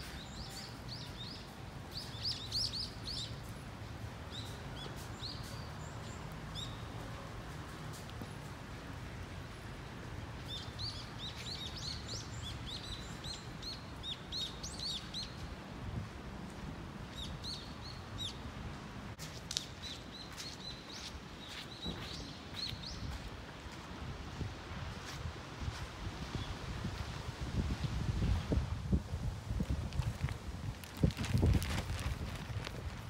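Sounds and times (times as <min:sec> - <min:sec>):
songbirds chirping: 0:00.0 - 0:15.7, 0:17.0 - 0:24.0.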